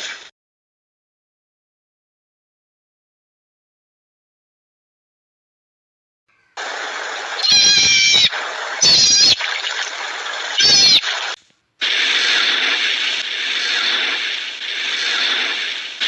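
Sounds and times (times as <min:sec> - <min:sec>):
cat meowing: 0:07.4 - 0:09.5, 0:10.6 - 0:11.0.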